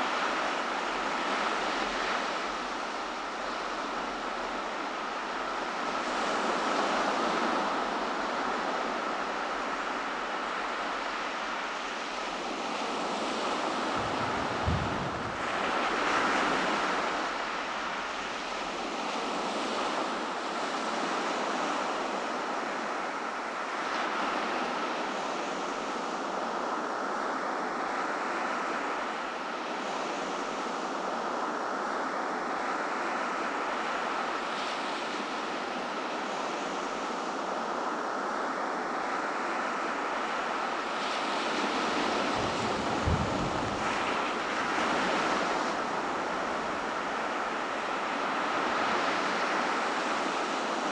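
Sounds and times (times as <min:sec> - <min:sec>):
ocean surf washing onto beach: 0:00.0 - 0:20.6, 0:39.0 - 0:50.9.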